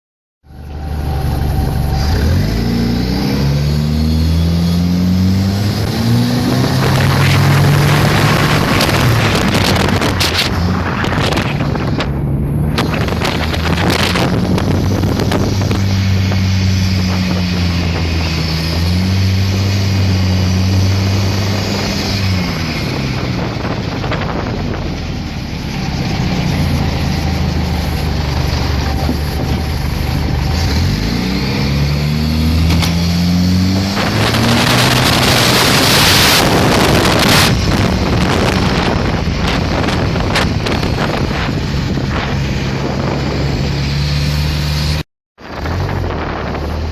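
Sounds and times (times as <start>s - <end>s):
motorboat engine running: 0.4s - 33.2s
wind rushing on microphone: 0.5s - 46.9s.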